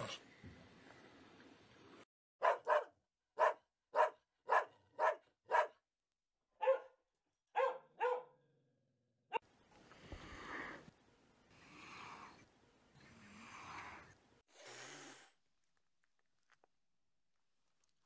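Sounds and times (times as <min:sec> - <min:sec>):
dog barking: 0:02.4 - 0:05.8, 0:06.6 - 0:07.0, 0:07.6 - 0:08.4.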